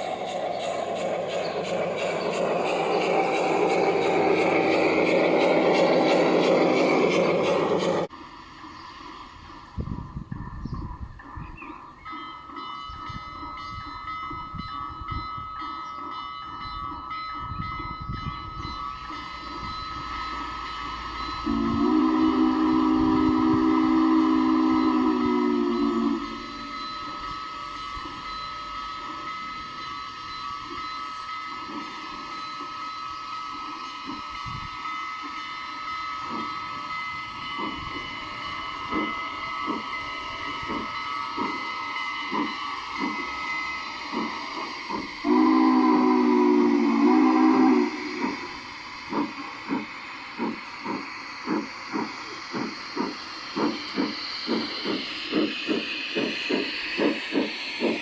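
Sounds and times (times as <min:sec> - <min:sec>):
steam hiss: 0:00.0 - 0:11.4, 0:18.4 - 0:58.0
steam locomotive chuffing: 0:00.0 - 0:58.0
steam locomotive whistle: 0:18.9 - 0:31.3, 0:32.2 - 0:49.8.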